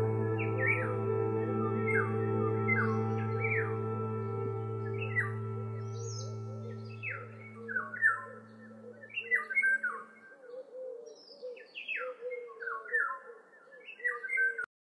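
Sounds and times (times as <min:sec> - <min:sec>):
low music drone: 0:00.0 - 0:10.2
birds chirping: 0:00.0 - 0:12.0.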